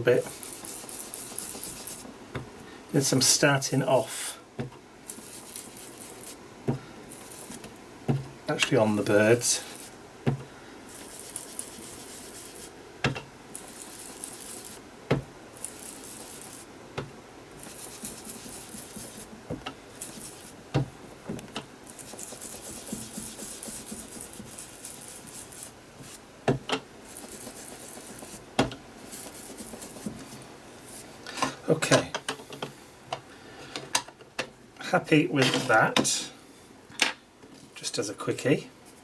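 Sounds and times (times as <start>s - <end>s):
blending tool rubbing on paper: 0.1s - 2.1s, 5.0s - 6.4s, 7.1s - 7.7s, 8.9s - 10.0s, 10.9s - 12.8s, 13.5s - 14.8s, 15.5s - 16.7s, 17.6s - 19.3s, 19.9s - 20.6s, 21.8s - 26.2s, 27.0s - 31.1s.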